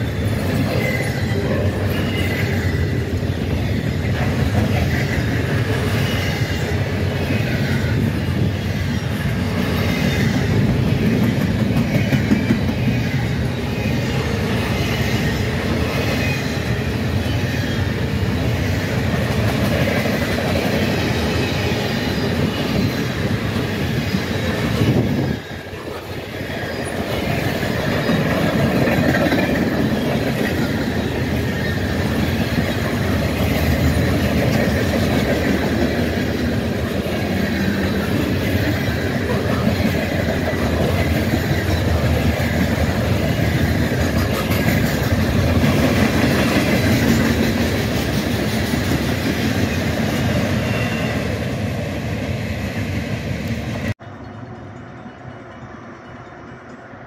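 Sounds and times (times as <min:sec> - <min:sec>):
freight train wheels rumbling: 0:00.0 - 0:57.0.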